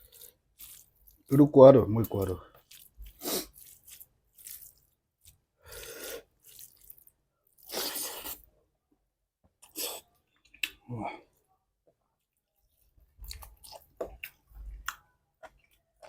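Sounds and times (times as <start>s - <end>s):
person chewing and slurping food: 0.0s - 1.3s, 2.1s - 8.5s, 13.1s - 16.0s.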